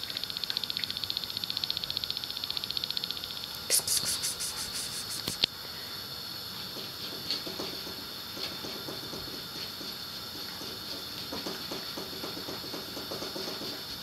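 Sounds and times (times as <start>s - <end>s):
steady background hiss: 0.0s - 14.0s
sharp click: 3.6s - 5.5s.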